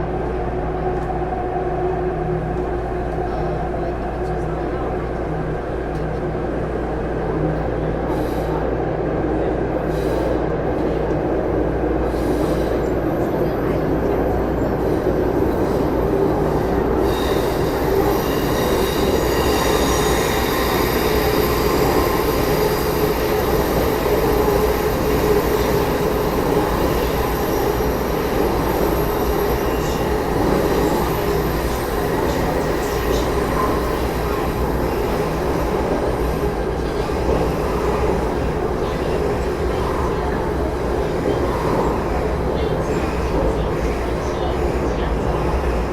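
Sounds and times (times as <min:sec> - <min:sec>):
subway car wheels and motors rumbling: 0:00.0 - 0:45.9.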